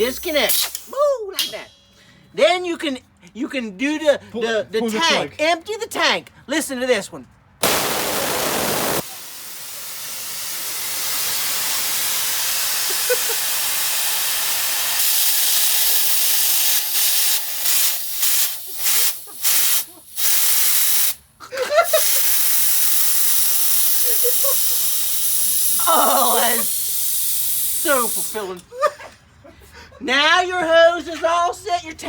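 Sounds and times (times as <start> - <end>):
compressed air hissing: 0.0 - 2.0, 7.6 - 21.2, 21.8 - 28.6.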